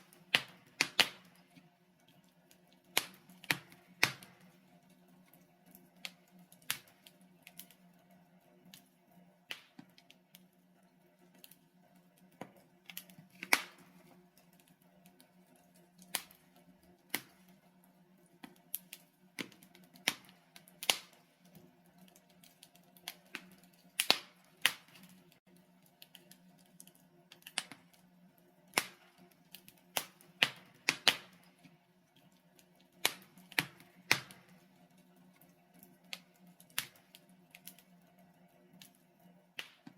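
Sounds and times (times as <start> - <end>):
logs crackling in fireplace: 0.0 - 39.9.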